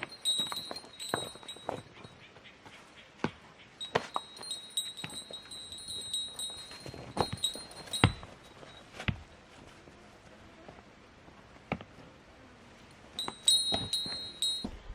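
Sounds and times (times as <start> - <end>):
high metallic ringing: 0.0 - 2.2, 3.8 - 8.9, 13.2 - 14.9.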